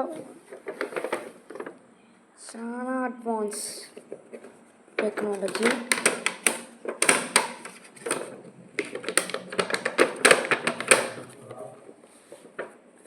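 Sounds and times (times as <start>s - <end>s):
plastic clicks and clatter: 0.5s - 1.8s, 4.0s - 11.4s.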